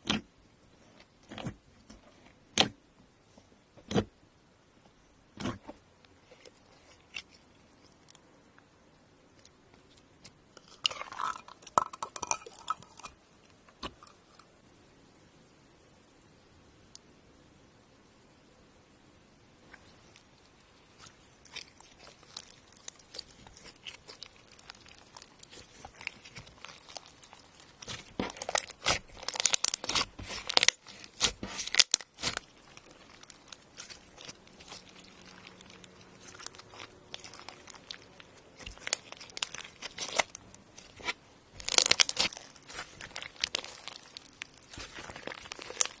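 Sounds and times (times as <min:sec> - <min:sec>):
slime squeezed clicking and popping: 0:41.6 - 0:46.0.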